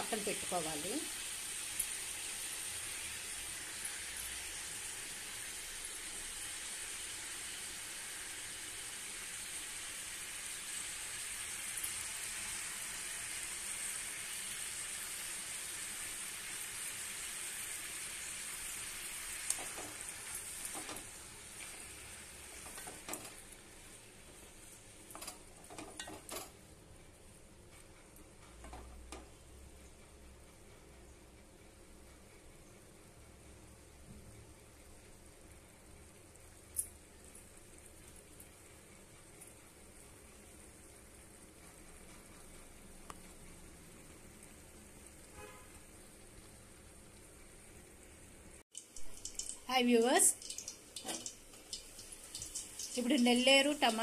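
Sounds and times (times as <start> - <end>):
food sizzling in oil: 0.0 - 26.6, 36.2 - 54.0
spoon scraping and tapping pan: 25.1 - 26.6, 48.8 - 49.7, 50.3 - 54.0.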